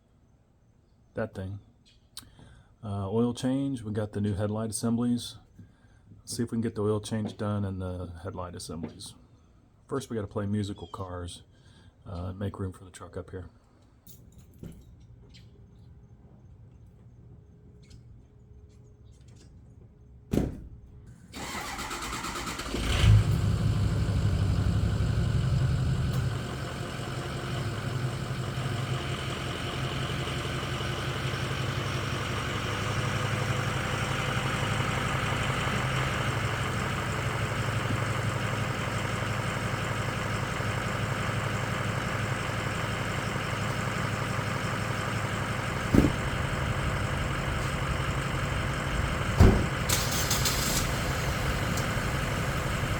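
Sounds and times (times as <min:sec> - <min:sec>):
vehicle engine starting and idling: 0:21.1 - 0:52.9
sharp thump: 0:45.9 - 0:46.4, 0:49.3 - 0:49.9.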